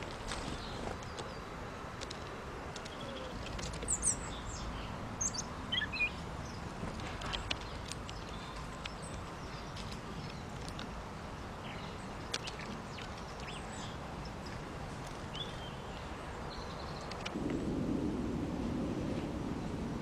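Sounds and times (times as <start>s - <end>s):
faint bird chirps: 2.8s - 6.6s.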